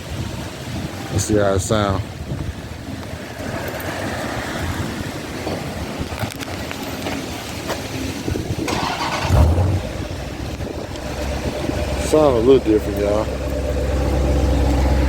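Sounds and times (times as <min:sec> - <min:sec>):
car engine starting and idling: 0:05.1 - 0:15.0.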